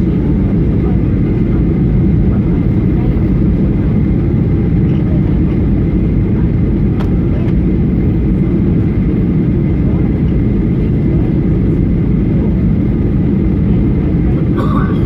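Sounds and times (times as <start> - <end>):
jet engines low rumble: 0.0 - 15.0
rushing air in cabin: 14.3 - 15.0.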